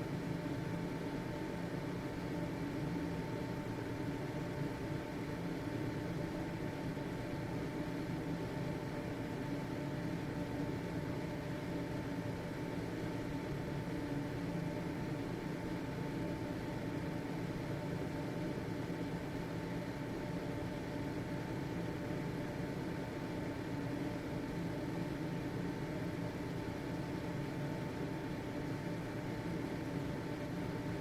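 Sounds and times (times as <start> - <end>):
ventilation fan running: 0.0 - 31.0.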